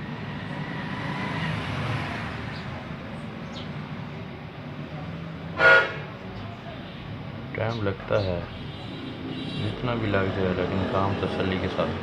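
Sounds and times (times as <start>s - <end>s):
vehicle passing: 0.0s - 4.2s
road traffic noise: 0.0s - 12.0s.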